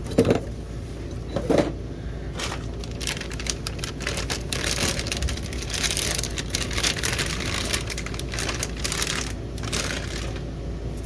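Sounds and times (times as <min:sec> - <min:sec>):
steady low hum: 0:00.0 - 0:11.0
packaging crinkling and rustling: 0:02.3 - 0:10.6.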